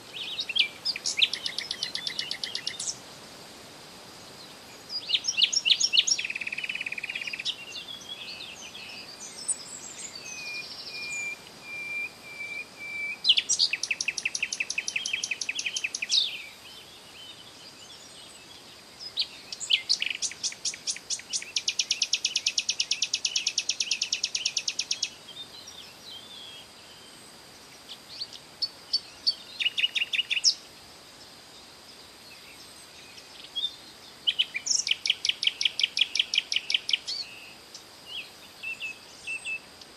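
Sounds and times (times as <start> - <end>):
songbirds singing and chirping: 0.0 - 3.2, 4.0 - 39.9
faint steady high tone: 6.2 - 16.6.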